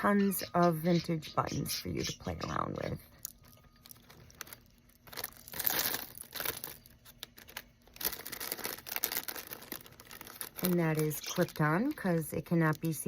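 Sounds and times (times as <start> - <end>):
packaging crinkling and rustling: 3.2 - 13.0.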